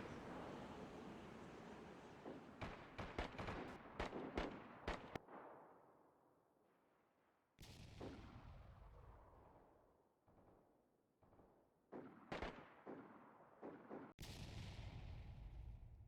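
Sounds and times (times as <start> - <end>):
rapid echoing gunshots: 0.0 - 5.8, 11.9 - 14.1.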